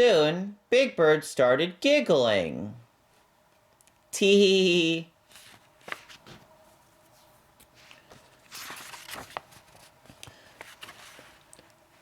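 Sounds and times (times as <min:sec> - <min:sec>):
page turning rustle: 0:05.2 - 0:11.7
soft clicks of book handling: 0:05.3 - 0:11.8.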